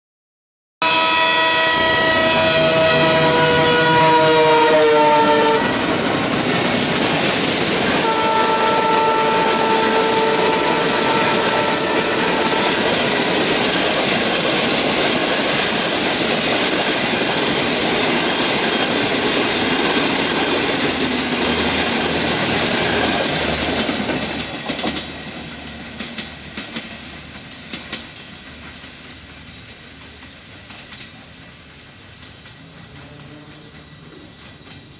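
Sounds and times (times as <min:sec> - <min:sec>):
train horn: 0:00.8 - 0:06.1, 0:08.0 - 0:13.1, 0:32.8 - 0:33.8
diesel locomotive passing: 0:00.8 - 0:34.9
train wheel clicks: 0:12.3 - 0:34.9.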